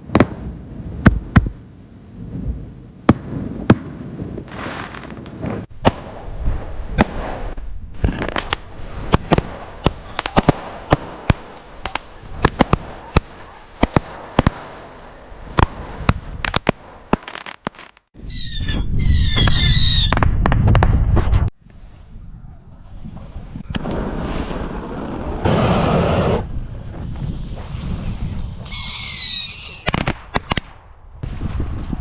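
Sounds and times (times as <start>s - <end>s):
fireworks popping and banging: 8.0s - 14.8s, 15.5s - 18.1s, 23.7s - 31.8s
hissing: 24.4s - 26.5s
high whistles: 28.7s - 29.9s.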